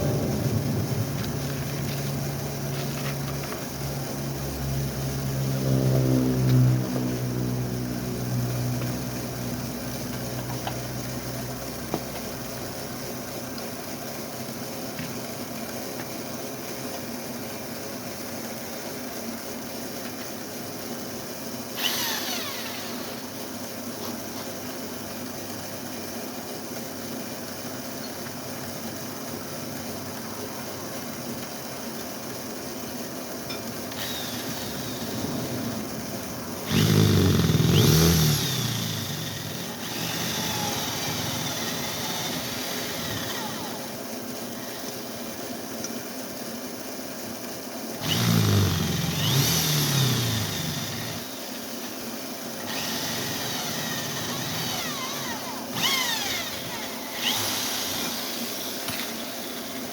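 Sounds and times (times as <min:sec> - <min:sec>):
falling motor whine: 0:00.0 - 0:12.8, 0:21.8 - 0:23.4, 0:33.9 - 0:45.1, 0:48.0 - 0:51.7, 0:52.6 - 0:59.9
motor running: 0:00.0 - 0:14.2, 0:21.6 - 0:24.4, 0:32.5 - 0:45.5, 0:47.8 - 0:59.9.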